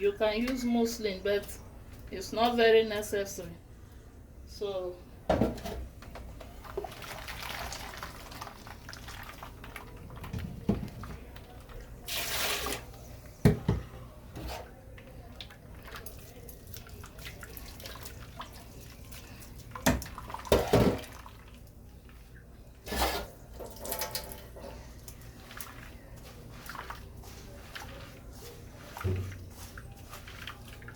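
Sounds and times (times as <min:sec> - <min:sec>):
liquid splashing into a bowl: 0:06.6 - 0:12.9, 0:15.1 - 0:28.2.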